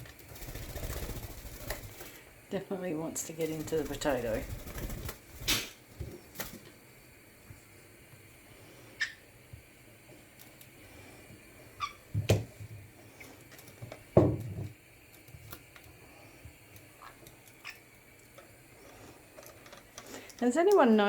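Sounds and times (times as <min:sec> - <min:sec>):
parrot chirping: 0:09.0 - 0:09.2, 0:11.8 - 0:12.1.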